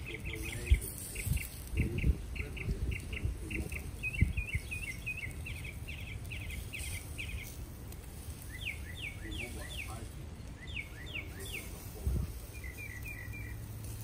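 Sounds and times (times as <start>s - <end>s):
songbird chirping: 0.0s - 14.0s.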